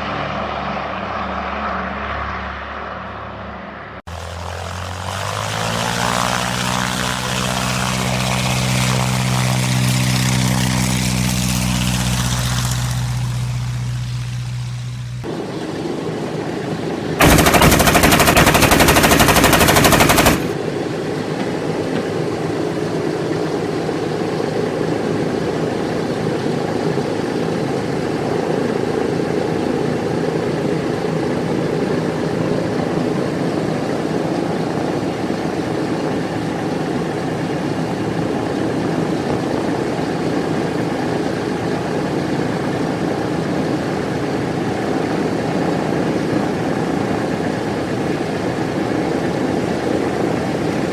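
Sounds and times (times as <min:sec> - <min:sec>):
propeller aircraft engine drone: 0:00.0 - 0:50.9
machine-gun fire: 0:17.2 - 0:20.6.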